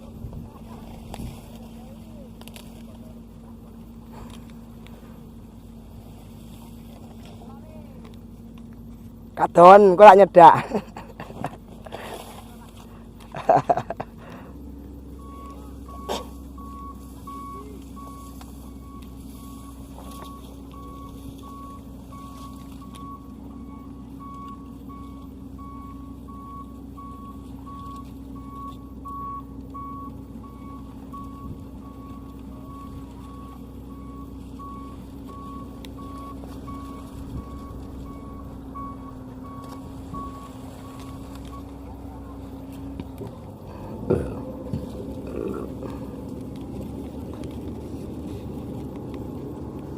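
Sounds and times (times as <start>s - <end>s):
combine harvester engine running: 0.0s - 49.9s
reversing alarm beeping: 15.1s - 42.0s.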